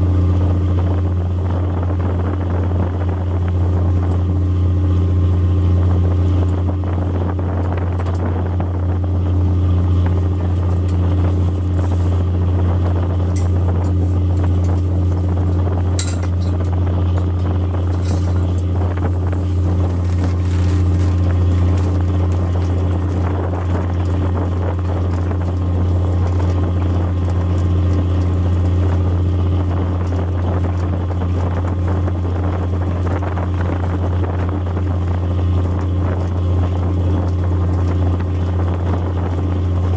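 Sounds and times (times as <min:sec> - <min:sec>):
boat engine low drone: 0:00.0 - 0:39.9.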